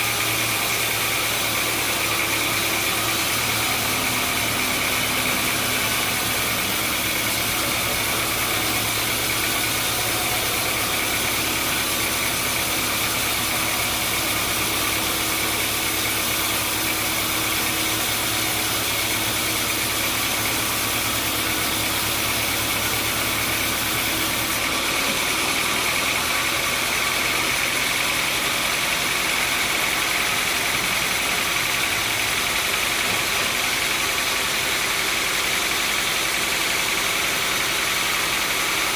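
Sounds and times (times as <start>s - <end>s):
sawmill machinery running: 0.0s - 38.9s
machinery low hum: 0.6s - 19.4s.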